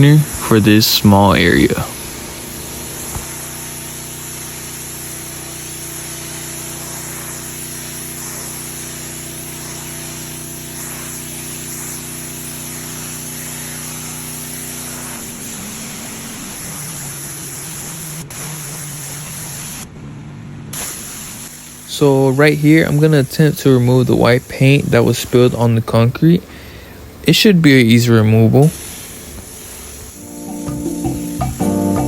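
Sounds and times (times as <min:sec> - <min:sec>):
pressure washer engine running: 0:00.0 - 0:19.8, 0:30.1 - 0:32.0
water spray hissing on concrete: 0:00.0 - 0:19.9, 0:20.8 - 0:26.4, 0:28.2 - 0:31.9.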